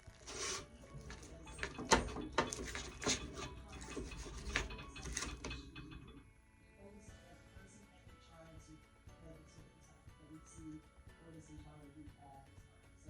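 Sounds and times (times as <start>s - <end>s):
metal utensils clinking on a dish: 0.0s - 6.3s.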